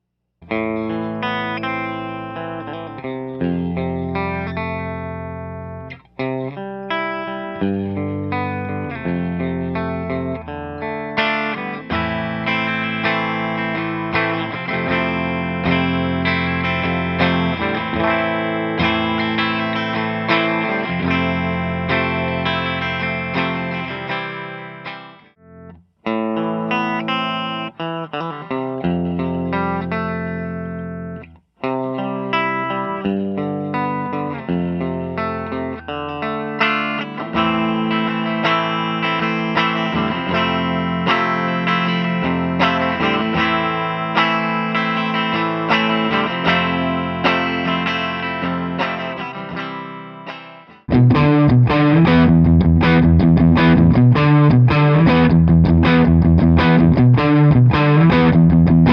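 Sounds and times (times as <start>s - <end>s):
clean electric guitar: 0.0s - 58.9s.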